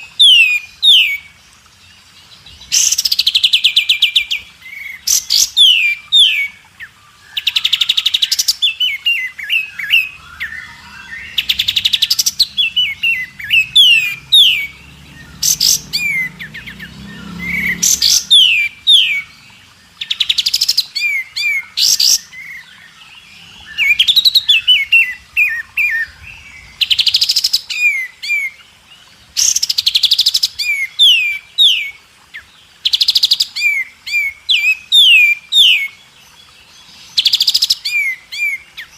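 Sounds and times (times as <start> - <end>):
bird trilling: 7.4 - 22.7.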